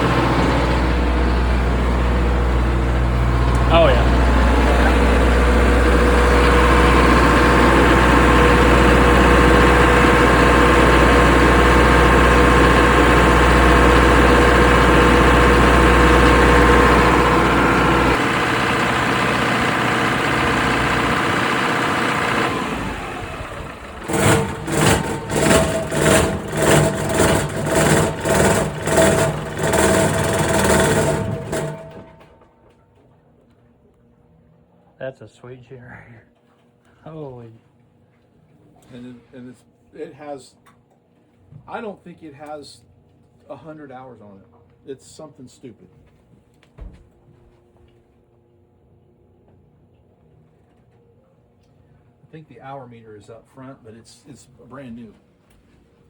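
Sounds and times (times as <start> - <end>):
generator humming: 0.0 - 32.8.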